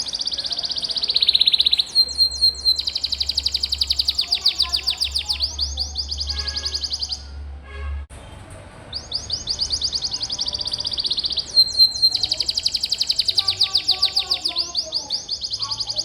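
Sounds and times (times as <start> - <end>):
canary trilling: 0.0 - 7.4, 8.9 - 16.0.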